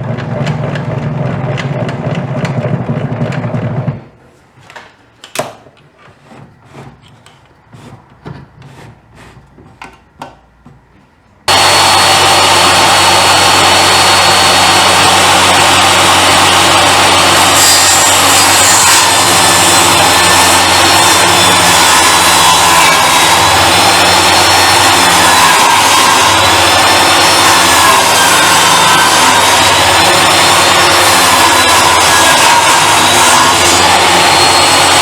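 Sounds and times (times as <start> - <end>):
power saw cutting wood: 11.5 - 35.0.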